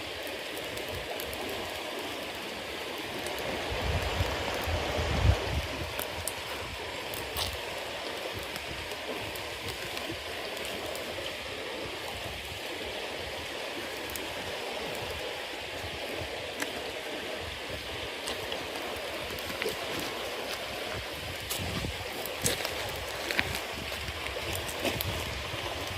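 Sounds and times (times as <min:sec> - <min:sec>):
bonfire hissing and crackling: 0:00.0 - 0:25.9.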